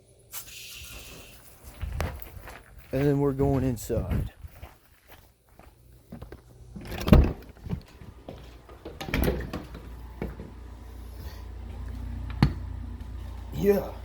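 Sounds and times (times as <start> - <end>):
low steady hum: 5.4 - 14.0
door thudding shut: 8.9 - 9.9.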